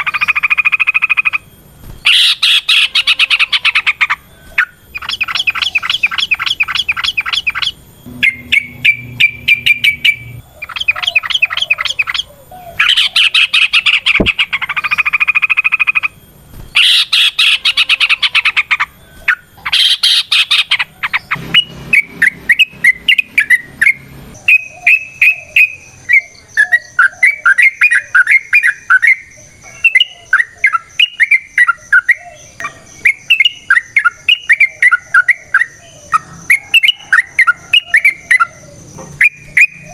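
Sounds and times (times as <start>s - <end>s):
bulbul bubbly chirping: 5.0s - 11.4s.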